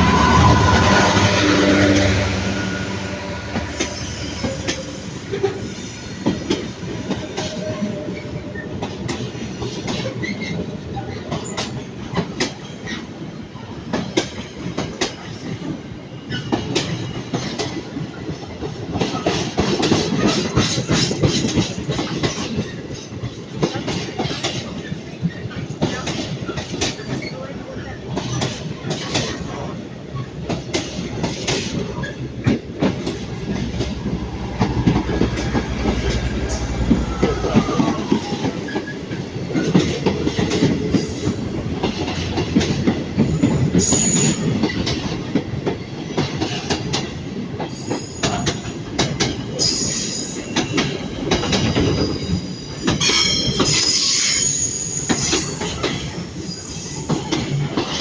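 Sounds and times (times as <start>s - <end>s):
wheels squealing on curves: 0.0s - 8.7s
locomotive engine rumbling: 0.0s - 10.1s, 30.4s - 45.6s.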